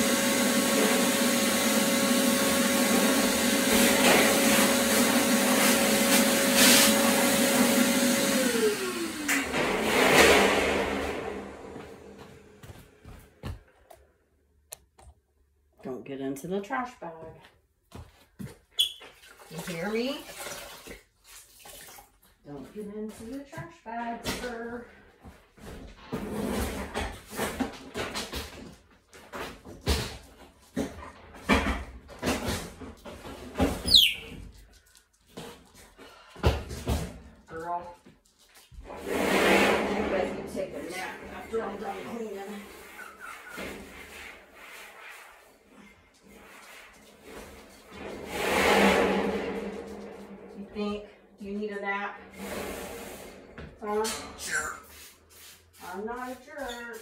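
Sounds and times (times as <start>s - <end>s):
vacuum cleaner running: 0.0s - 12.8s, 38.8s - 43.9s, 51.9s - 54.0s
high squeak: 33.8s - 34.3s.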